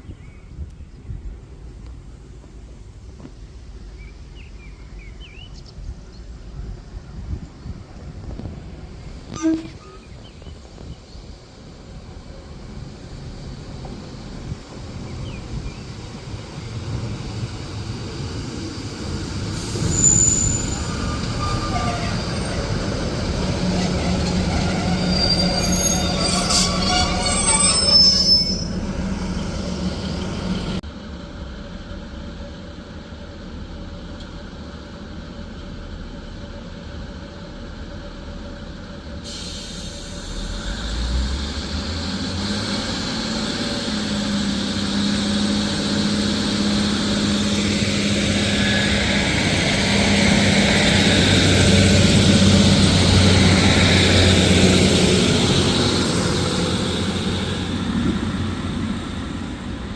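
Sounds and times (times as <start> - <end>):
train hum: 0.0 - 59.9
train wheels squealing: 9.3 - 10.6, 18.2 - 30.8, 43.7 - 57.6.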